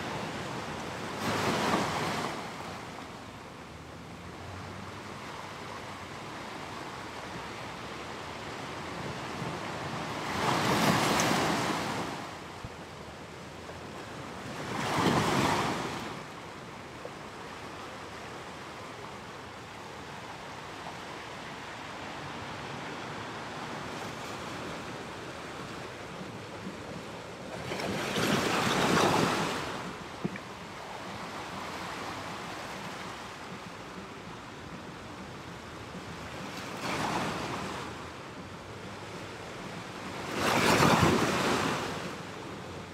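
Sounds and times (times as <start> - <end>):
ocean waves on a shore: 0.0 - 42.9.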